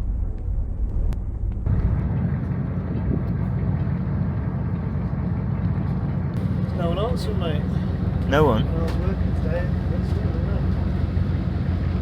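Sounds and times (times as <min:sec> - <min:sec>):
motor boat engine rumble: 0:00.0 - 0:12.0
water wash: 0:00.0 - 0:12.0.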